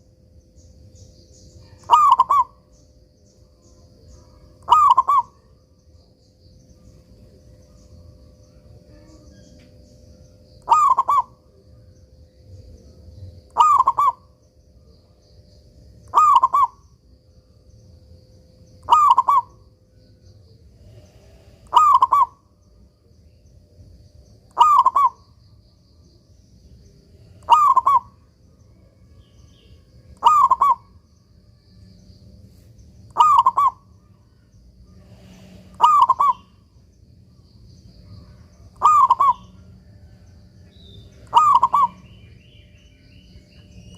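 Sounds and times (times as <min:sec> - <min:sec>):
dove cooing: 0:01.6 - 0:02.7, 0:04.6 - 0:05.5, 0:10.6 - 0:11.5, 0:13.5 - 0:14.3, 0:16.1 - 0:16.8, 0:18.8 - 0:19.6, 0:21.7 - 0:22.5, 0:24.5 - 0:25.2, 0:27.4 - 0:28.2, 0:30.2 - 0:31.0, 0:33.1 - 0:34.1, 0:35.0 - 0:36.6, 0:38.1 - 0:40.1, 0:41.1 - 0:42.1.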